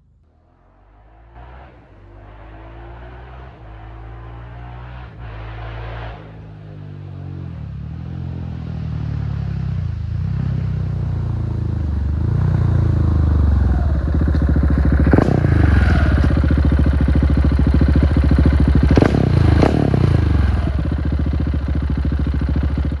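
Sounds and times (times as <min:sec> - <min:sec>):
motorcycle engine revving: 0:00.8 - 0:23.0
exhaust cracks: 0:12.6 - 0:23.0.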